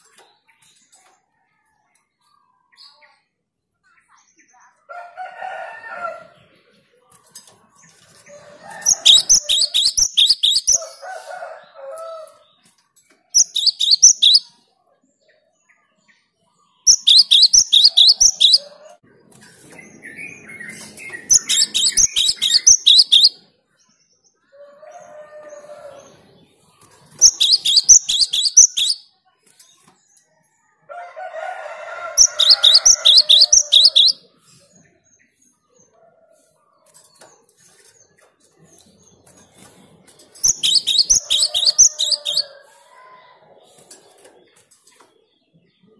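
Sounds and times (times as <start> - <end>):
bird chattering calls: 8.8 - 10.8, 13.4 - 14.5, 16.9 - 18.7, 21.2 - 23.4, 27.2 - 29.0, 32.2 - 34.2, 40.4 - 42.5
bird song bursts of high notes: 13.4 - 14.5, 16.9 - 18.6, 19.9 - 23.4, 27.2 - 29.1, 40.4 - 42.5.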